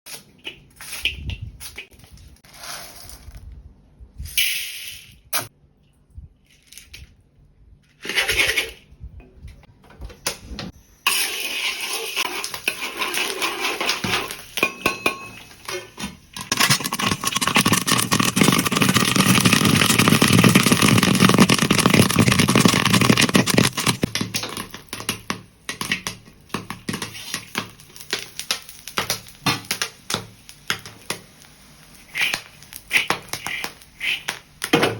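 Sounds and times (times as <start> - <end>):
popcorn popping in a pan: 11.1 - 34.9.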